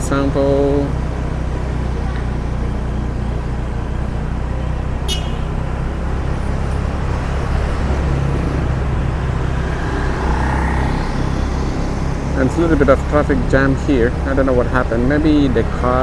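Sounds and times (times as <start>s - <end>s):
car engine and road noise inside: 0.0s - 16.0s
high-pitched chirp: 5.1s - 5.6s.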